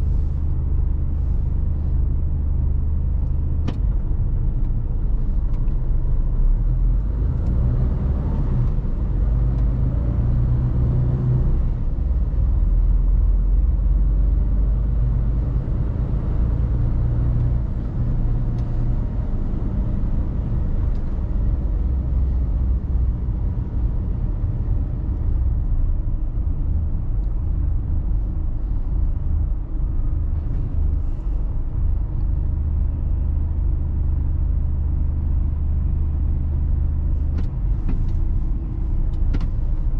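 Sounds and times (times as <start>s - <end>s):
truck diesel engine rumble: 0.0s - 39.9s.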